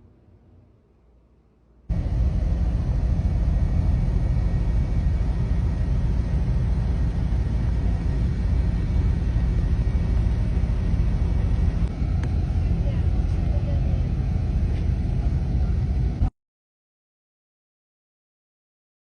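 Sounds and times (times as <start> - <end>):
deep rumble: 1.9 - 16.3.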